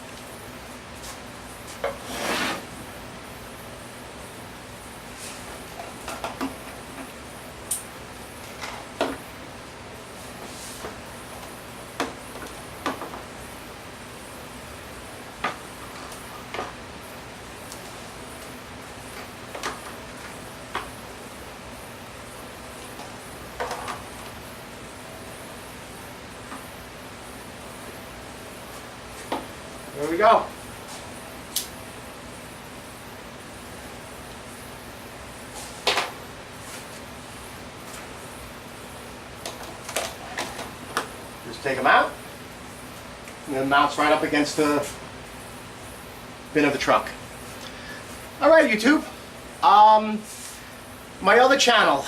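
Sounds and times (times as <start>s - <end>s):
steady background hiss: 0.0s - 52.0s
short scrape: 2.0s - 2.7s.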